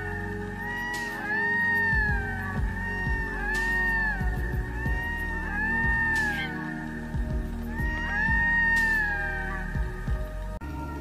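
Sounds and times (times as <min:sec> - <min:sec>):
background music: 0:00.0 - 0:11.0
loon wailing calls: 0:00.1 - 0:10.4
low thuds: 0:02.0 - 0:05.2, 0:07.1 - 0:08.7.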